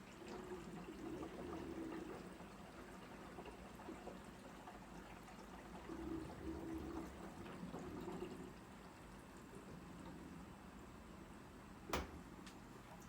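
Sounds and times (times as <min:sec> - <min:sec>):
water splashing in washing machine: 0:00.0 - 0:08.6.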